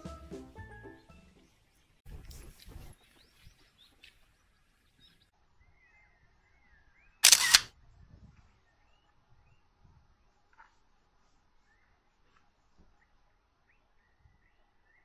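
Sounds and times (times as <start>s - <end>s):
faint bird chirps: 1.2s - 10.8s.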